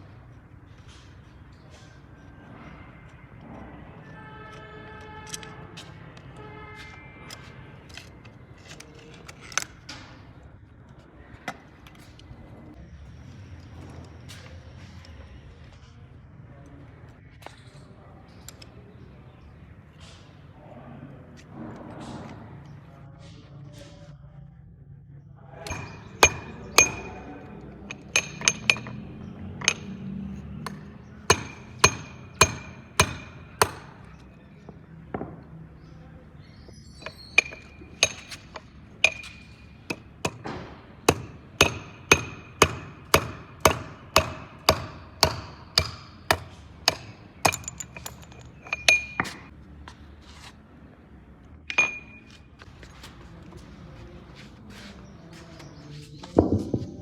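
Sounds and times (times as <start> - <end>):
hammer blows on metal: 25.7 - 34.3.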